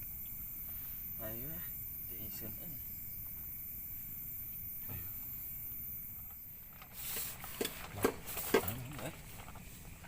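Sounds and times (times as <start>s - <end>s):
crickets chirping: 0.0s - 10.0s
close rustling and knocks: 6.7s - 10.0s.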